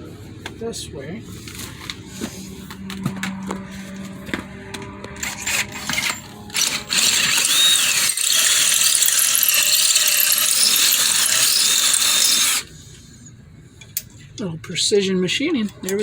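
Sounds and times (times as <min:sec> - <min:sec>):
power drill running: 0:05.1 - 0:12.7.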